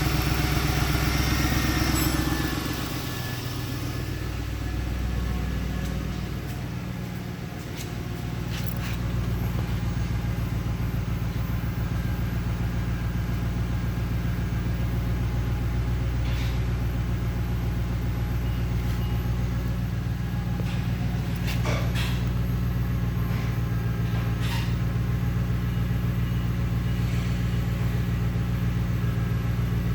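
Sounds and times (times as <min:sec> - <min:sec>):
car engine idling: 0:00.0 - 0:29.9.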